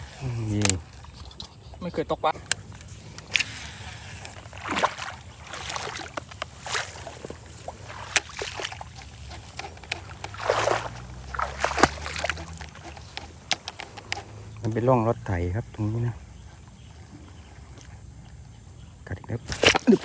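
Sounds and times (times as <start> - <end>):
water splashing and sloshing: 0.0 - 20.0
sharp clicks and knocks: 8.1 - 14.8.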